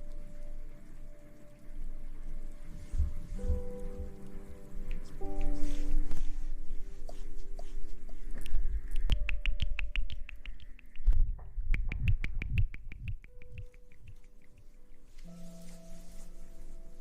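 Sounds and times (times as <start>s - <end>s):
low thumps: 8.2s - 14.2s.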